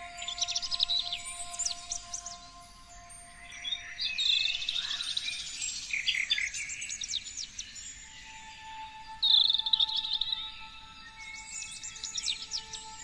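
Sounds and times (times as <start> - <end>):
songbird trill: 0.0 - 13.0.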